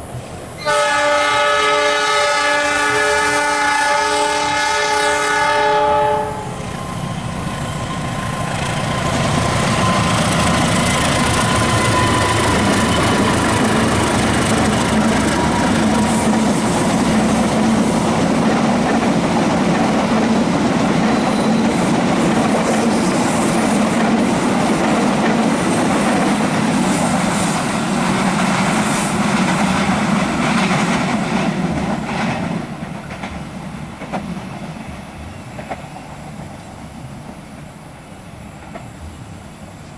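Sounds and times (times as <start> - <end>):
train horn: 0.6 - 6.6
train wheels clattering on rails: 6.5 - 39.2.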